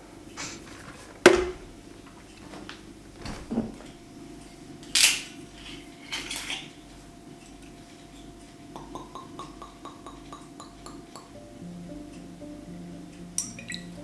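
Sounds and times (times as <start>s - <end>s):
kitchenware knock: 1.2s - 1.8s.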